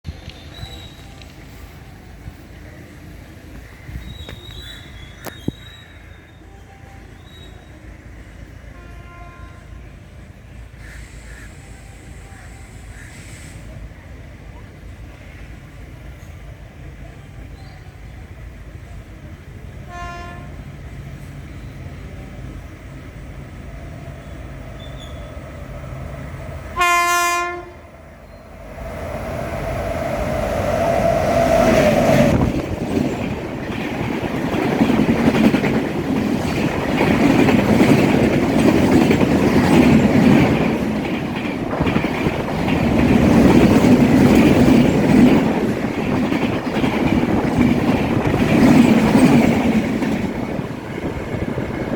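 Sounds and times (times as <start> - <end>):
train rumble passing: 0.0 - 51.9
train horn: 8.7 - 9.9, 19.8 - 20.7, 26.7 - 27.9
wheels clacking over rail joints: 30.7 - 51.9.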